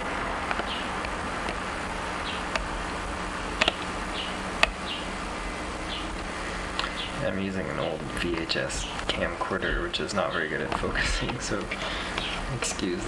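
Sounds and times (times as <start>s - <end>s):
road noise: 0.0s - 13.0s
bird chirping: 0.6s - 1.0s, 2.2s - 2.5s, 3.6s - 5.2s, 5.8s - 6.2s, 6.8s - 8.0s, 8.8s - 10.6s
sharp clicks: 3.6s - 5.0s.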